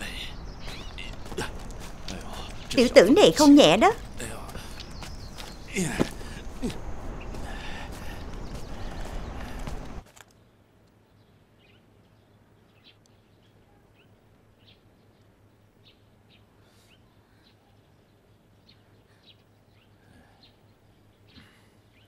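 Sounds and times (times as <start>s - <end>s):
faint bird chirps: 0.0s - 9.7s
faint low hum: 0.0s - 10.0s.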